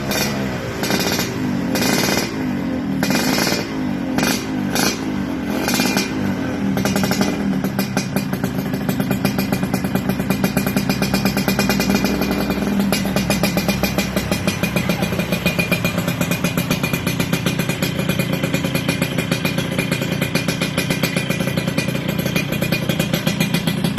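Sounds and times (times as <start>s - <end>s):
motorcycle engine idling: 0.0s - 23.9s.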